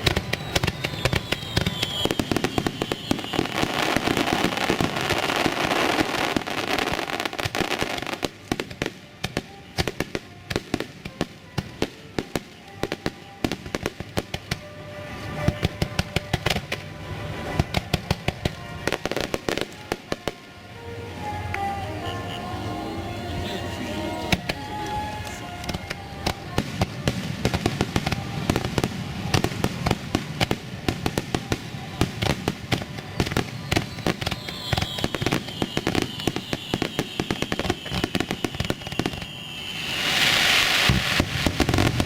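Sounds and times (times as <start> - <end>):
falling firework whistle: 0.0 - 8.2, 24.3 - 42.0
fireworks bursting and crackling: 0.0 - 42.0.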